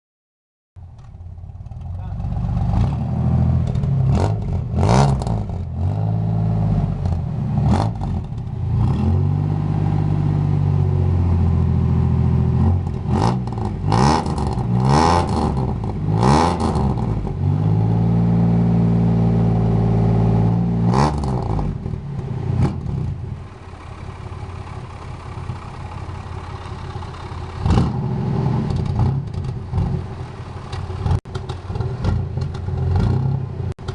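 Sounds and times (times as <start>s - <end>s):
car engine revving: 1.4s - 33.9s
sharp exhaust cracks: 12.5s - 18.8s, 20.5s - 33.9s.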